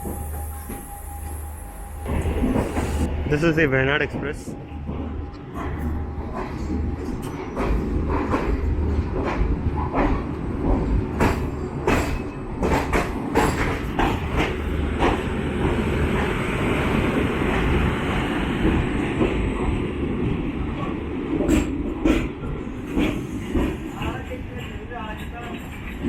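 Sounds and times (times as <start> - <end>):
train rumbling: 0.0 - 26.0
train wheels clacking on rail joints: 4.0 - 16.4, 21.3 - 26.0.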